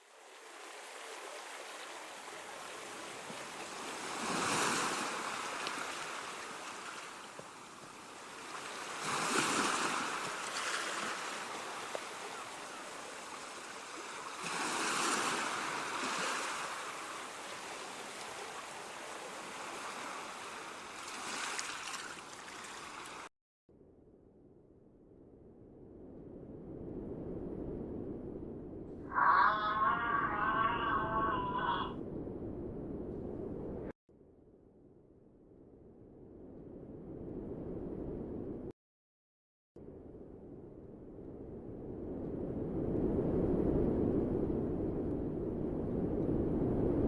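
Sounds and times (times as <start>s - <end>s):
waves rushing: 0.0s - 23.3s, 29.1s - 31.9s.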